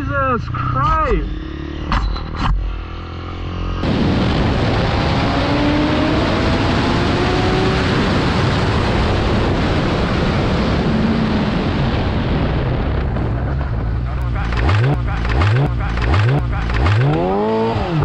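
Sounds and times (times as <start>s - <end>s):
motorcycle engine accelerating: 0.0s - 18.0s
heavy wind rush on microphone: 3.8s - 14.2s.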